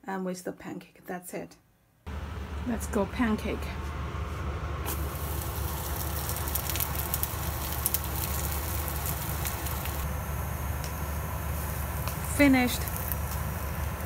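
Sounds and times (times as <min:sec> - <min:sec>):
steady low hum: 0:02.1 - 0:14.0
pancake sizzling in pan: 0:04.9 - 0:14.0.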